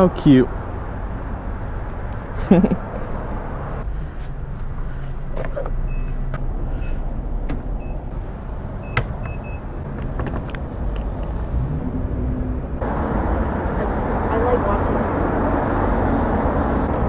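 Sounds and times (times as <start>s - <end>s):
short electronic beeps: 0.0s - 12.8s
steady low hum: 0.0s - 17.0s
clicks: 0.6s - 12.8s.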